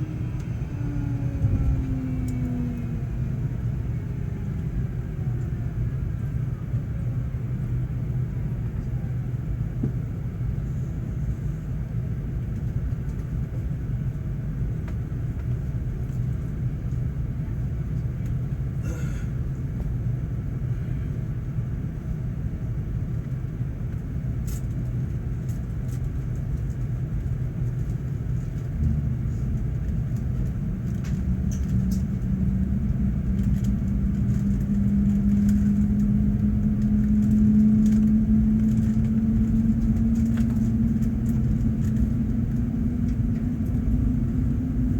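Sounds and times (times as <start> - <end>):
jet engine spooling up hum: 0.0 - 5.9
low rumble in aircraft cabin: 0.0 - 44.9.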